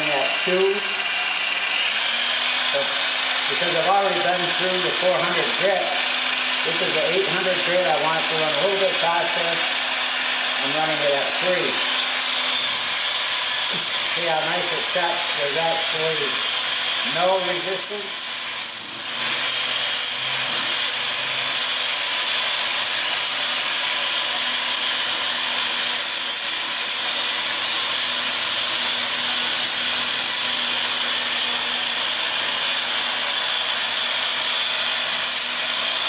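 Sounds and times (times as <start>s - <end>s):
angle grinder motor whine: 0.0s - 36.0s
pads hissing on stone: 13.4s - 16.4s.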